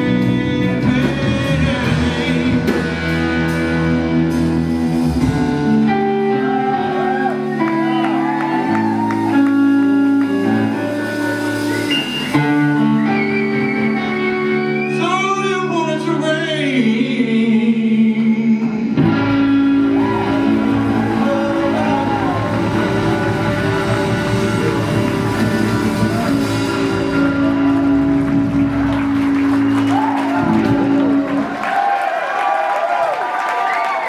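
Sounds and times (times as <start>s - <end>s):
person singing: 0.0s - 3.6s, 14.0s - 27.8s
bass guitar: 0.0s - 32.0s
electric guitar: 0.0s - 33.0s.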